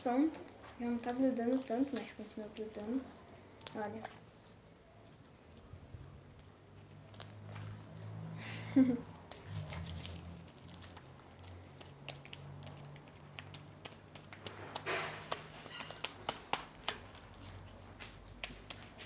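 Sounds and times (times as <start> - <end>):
slime squished by hand: 9.3 - 19.0.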